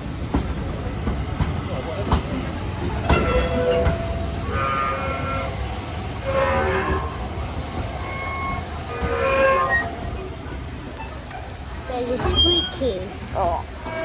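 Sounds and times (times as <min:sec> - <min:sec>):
rumble of moving train: 0:00.0 - 0:14.0
train brakes squealing: 0:02.3 - 0:14.0.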